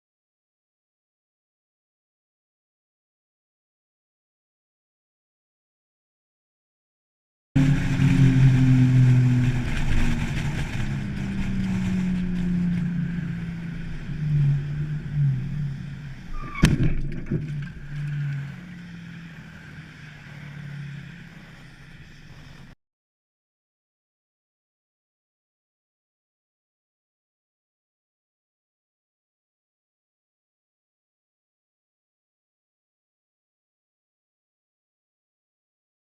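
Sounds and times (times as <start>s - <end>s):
vehicle engine running: 7.6s - 22.8s.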